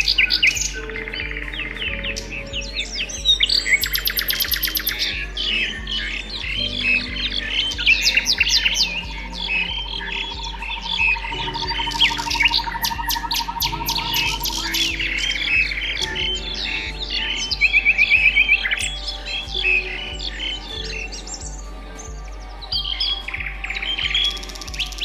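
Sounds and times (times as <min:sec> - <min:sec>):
songbirds chirping: 0:00.0 - 0:25.0.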